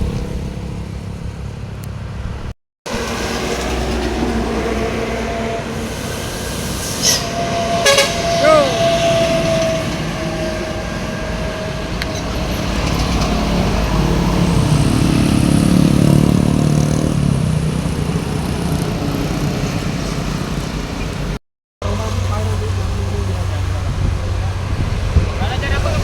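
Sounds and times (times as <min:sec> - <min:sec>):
road traffic: 0:00.0 - 0:26.0
vehicle engine passing close: 0:00.0 - 0:26.0.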